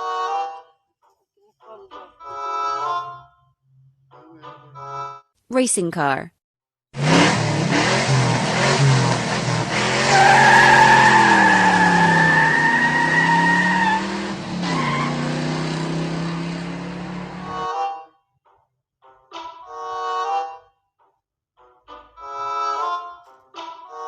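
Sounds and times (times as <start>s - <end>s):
racing car engine revving: 7.0s - 17.5s
tyres squealing: 9.8s - 15.6s.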